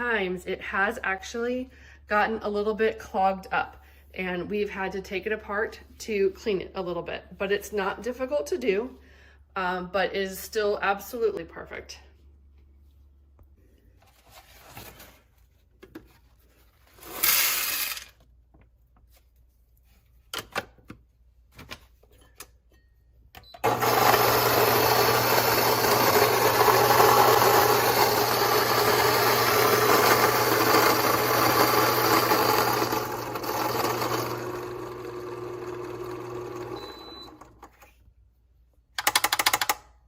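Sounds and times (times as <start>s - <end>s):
electric coffee grinder whirring: 23.6s - 37.6s.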